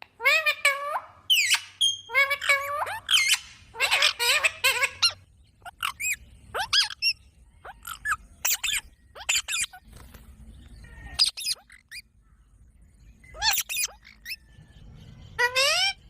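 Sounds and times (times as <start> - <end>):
parrot chirps and squawks: 0.1 - 9.9, 10.8 - 12.1, 13.3 - 14.5, 15.4 - 16.0.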